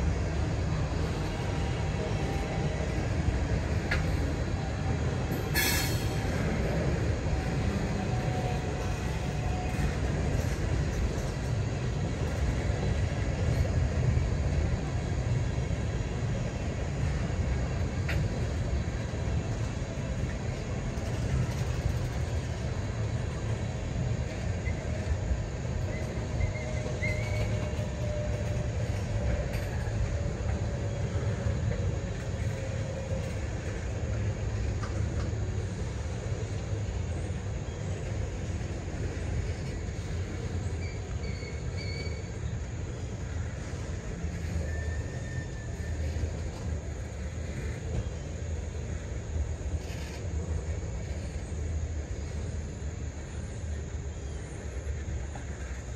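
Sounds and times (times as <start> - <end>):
train wheels rumbling on rail: 0.0 - 55.9
faint wheel squeal: 5.5 - 6.6, 25.8 - 31.2, 39.4 - 46.7, 49.8 - 50.4.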